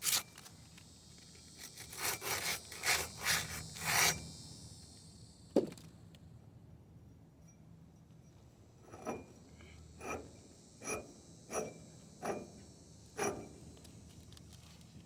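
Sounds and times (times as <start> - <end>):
hand tool scraping: 0.0 - 0.6, 1.6 - 4.3, 8.8 - 14.9.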